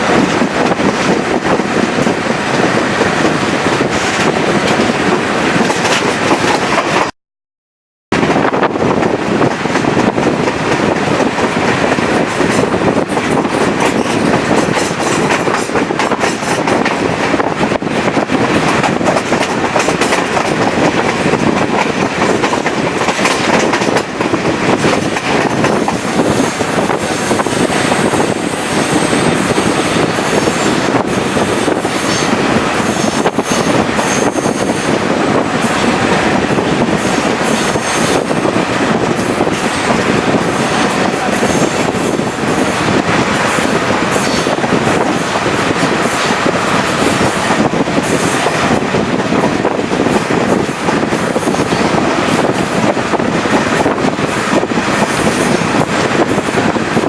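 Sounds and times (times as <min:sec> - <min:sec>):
rail joint clicks: 0:00.0 - 0:07.1, 0:08.2 - 0:57.0
train wheels rushing on rail: 0:00.0 - 0:07.2, 0:08.1 - 0:57.0.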